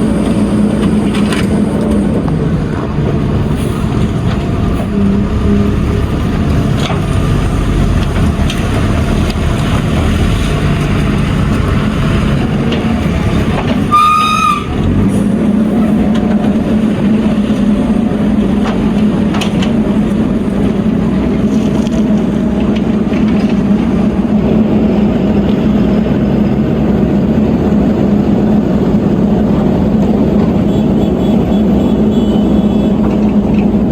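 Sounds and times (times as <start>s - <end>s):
heavy diesel engine running: 0.0s - 33.9s
short high horn tone: 13.9s - 14.8s.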